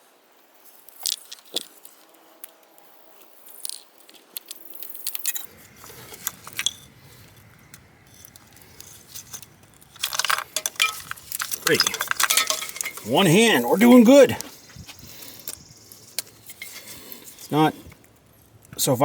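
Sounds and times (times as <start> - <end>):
clicks and rattles of connectors: 3.6 - 13.2.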